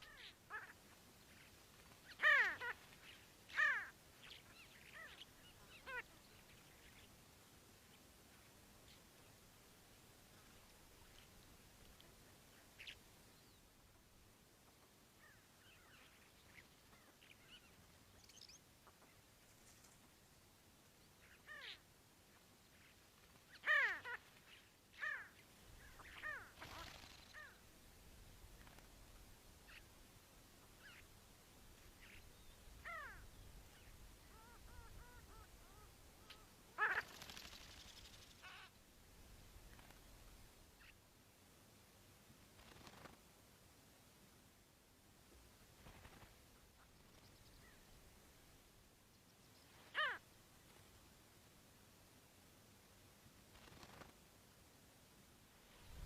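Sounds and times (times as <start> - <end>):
bird calling: 0.0 - 7.1, 23.5 - 27.6, 32.0 - 38.8, 49.7 - 50.2.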